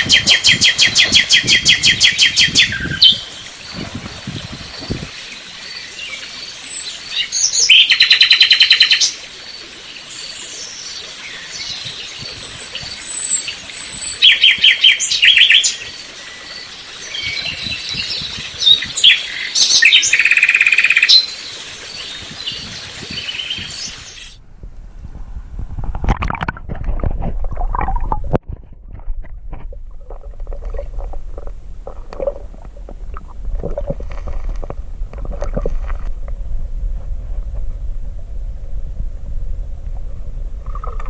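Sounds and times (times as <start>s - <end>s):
birds trilling: 17.2s - 24.4s.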